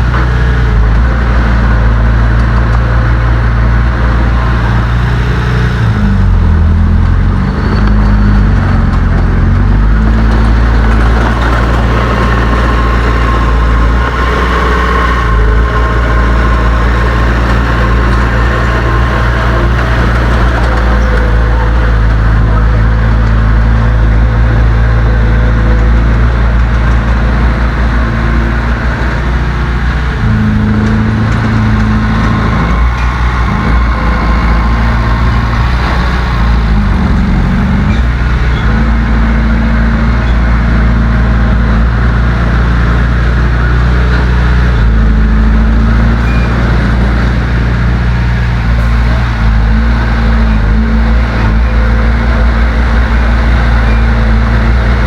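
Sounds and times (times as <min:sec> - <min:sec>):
heavy diesel engine under load: 0:00.0 - 0:55.0.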